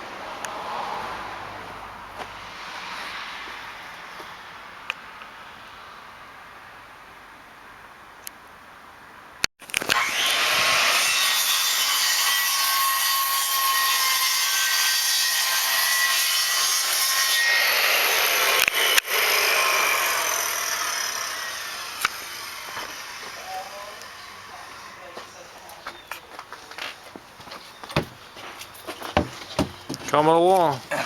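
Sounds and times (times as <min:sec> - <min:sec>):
electric saw cutting wood: 0:09.7 - 0:25.4.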